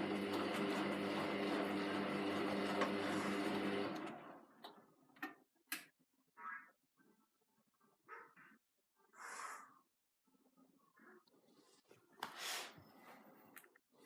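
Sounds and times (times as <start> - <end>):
washing machine running: 0.0 - 4.8.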